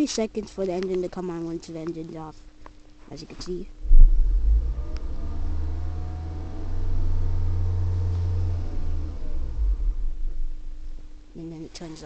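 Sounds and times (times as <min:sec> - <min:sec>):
car engine starting and humming: 0:03.8 - 0:11.3.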